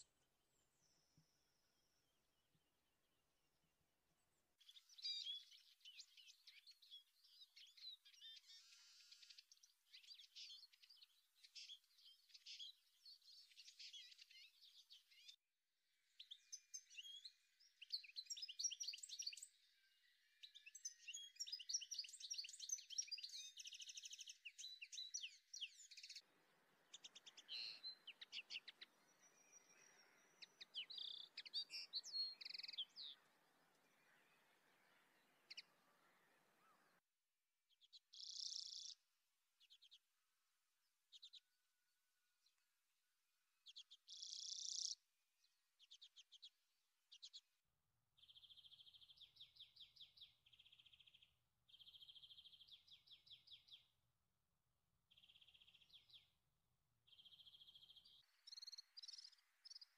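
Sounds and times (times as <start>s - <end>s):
songbirds chirping and singing: 4.3s - 37.0s, 43.6s - 47.6s, 48.2s - 54.0s, 55.1s - 56.4s, 57.1s - 59.9s.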